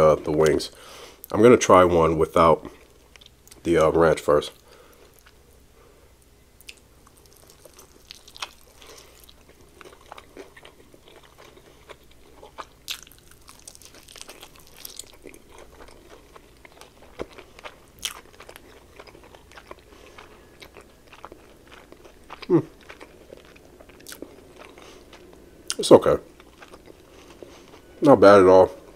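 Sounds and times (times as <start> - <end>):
quiet chewing: 4.5 - 5.4, 6.6 - 25.8, 26.4 - 27.9
crisp crunches of fried chicken: 7.1 - 25.1.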